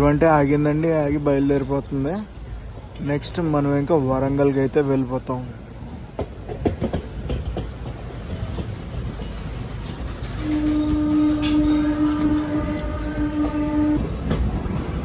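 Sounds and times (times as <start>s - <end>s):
train wheels clicking on rail joints: 0.0s - 15.0s
locomotive horn: 10.4s - 14.2s.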